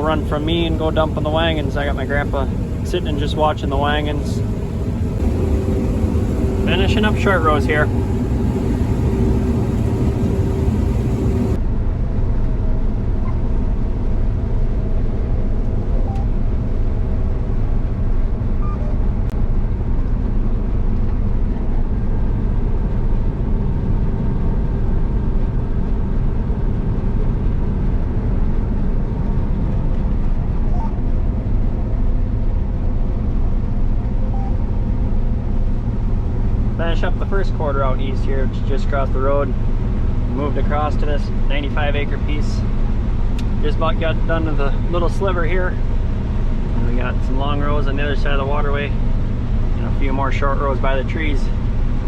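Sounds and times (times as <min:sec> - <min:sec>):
combine harvester droning: 0:00.0 - 0:11.6, 0:24.2 - 0:52.0.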